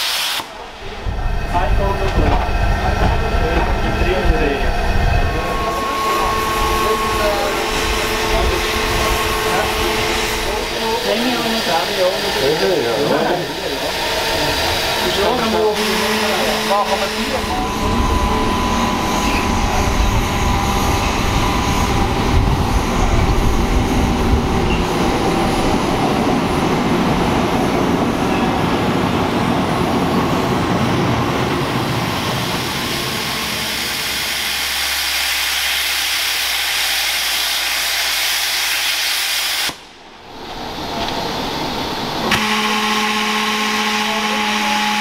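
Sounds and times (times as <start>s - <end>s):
train rolling past on rails: 0.0s - 45.0s.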